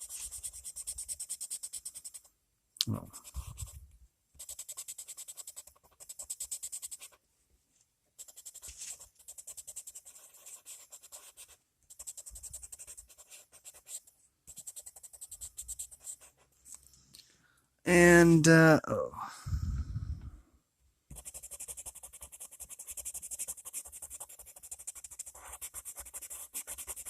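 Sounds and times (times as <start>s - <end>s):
pencil scratching on paper: 0.0s - 2.4s, 3.1s - 3.8s, 4.4s - 7.2s, 8.2s - 16.6s, 21.1s - 27.0s.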